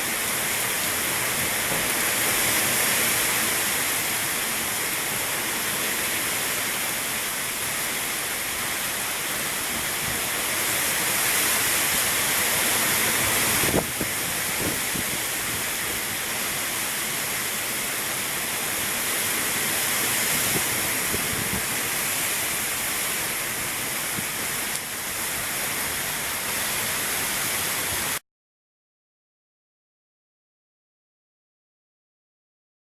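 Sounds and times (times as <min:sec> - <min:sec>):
storm wind rushing: 0:11.6 - 0:16.0, 0:19.8 - 0:24.6.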